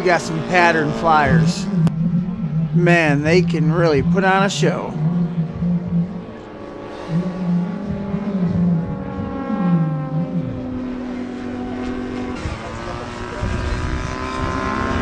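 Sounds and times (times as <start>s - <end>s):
model plane engines: 7.7s - 15.0s.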